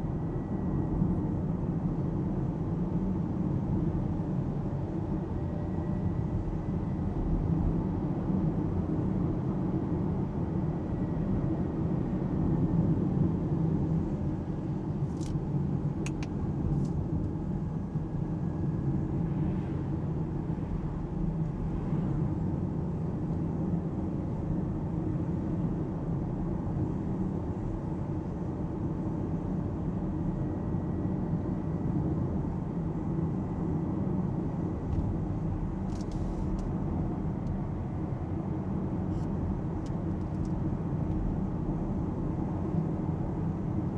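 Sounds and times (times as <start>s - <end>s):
road and tyre noise: 18.9s - 24.6s.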